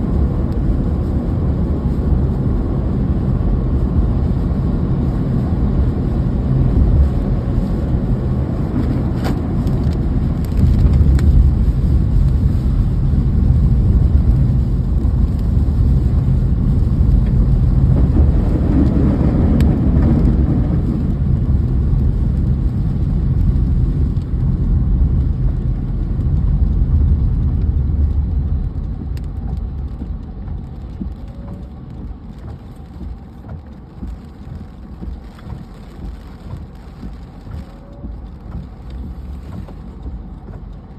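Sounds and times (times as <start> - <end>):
deep rumble: 0.0 - 40.9
rain: 0.0 - 40.9.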